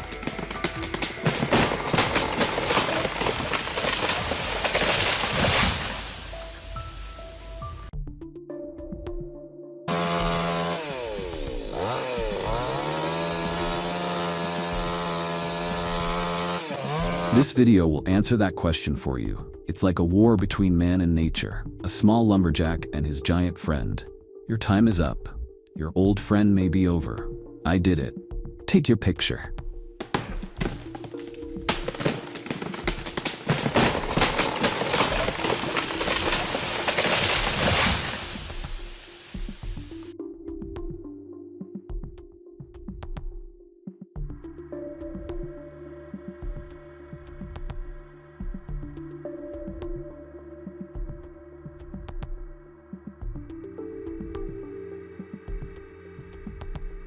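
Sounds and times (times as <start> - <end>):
chainsaw running at high revs: 0.0 - 5.2, 9.9 - 17.5, 30.6 - 40.0
wood breaking and branches snapping: 0.0 - 6.6, 9.9 - 17.4, 30.0 - 40.0.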